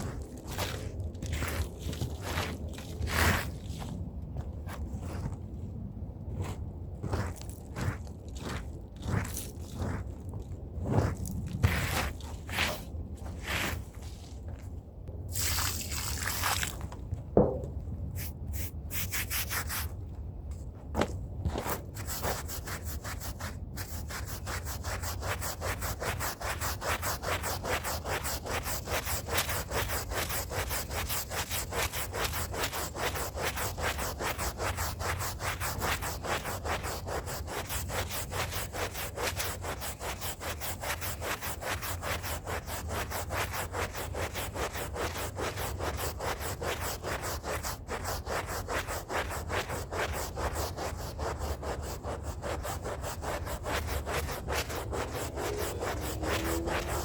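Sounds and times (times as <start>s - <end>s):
brush scrubbing a rug: 0.0s - 3.9s, 10.8s - 14.2s, 18.2s - 19.9s, 21.6s - 57.0s.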